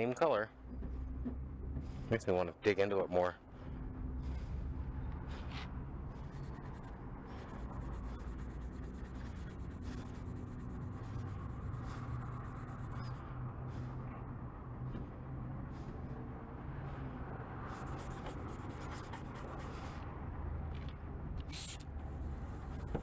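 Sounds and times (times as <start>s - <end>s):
low hum: 3.4s - 19.5s
scratchy rubbing on plastic: 6.2s - 13.2s, 17.7s - 19.8s, 22.2s - 23.0s.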